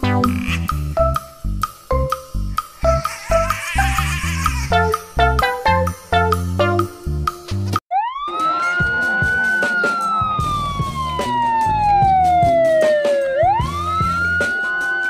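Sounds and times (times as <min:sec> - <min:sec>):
background music: 0:00.0 - 0:15.0
police car siren wailing: 0:07.9 - 0:15.0.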